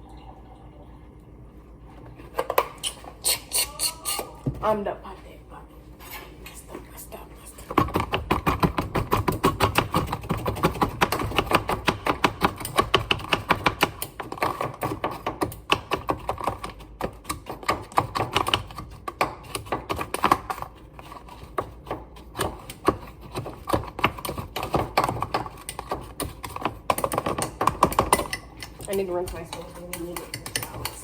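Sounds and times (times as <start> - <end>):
utensil clicking against bowl: 24.1 - 31.0.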